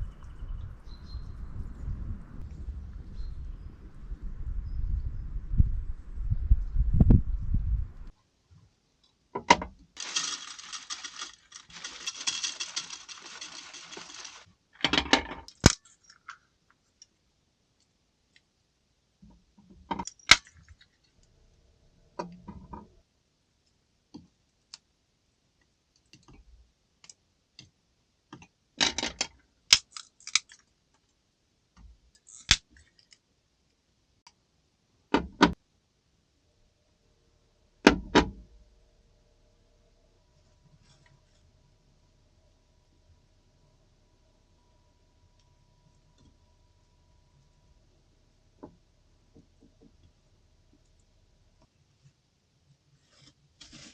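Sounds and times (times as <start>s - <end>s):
small objects clinking and knocking: 10.0s - 16.4s.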